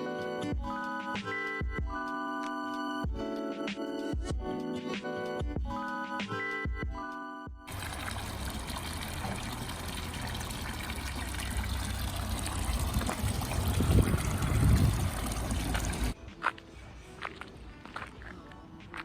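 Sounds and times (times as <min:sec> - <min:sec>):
running water: 0:07.7 - 0:16.2
low rumble: 0:09.9 - 0:16.2.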